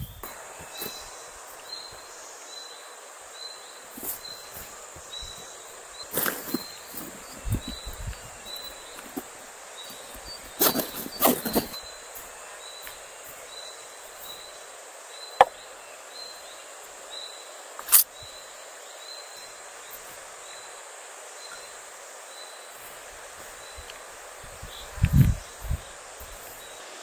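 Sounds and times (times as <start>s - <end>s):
steady hiss: 0.0s - 27.0s
sharp snaps: 17.8s - 18.2s.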